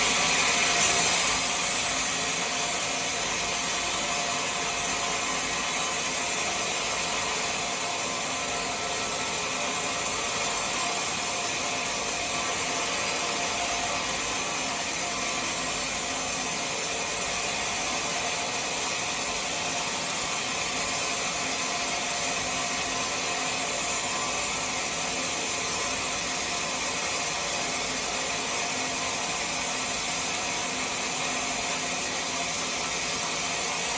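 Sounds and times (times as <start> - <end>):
woodworking power tool whirring: 0.0 - 33.9.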